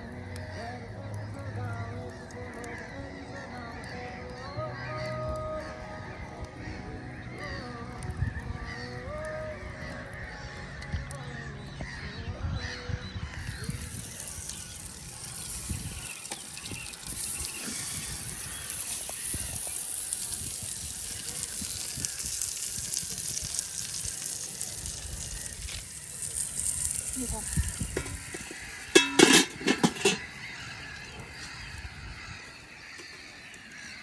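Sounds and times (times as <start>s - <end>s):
high hiss with crackling: 13.3s - 31.6s
geese honking: 24.5s - 34.0s.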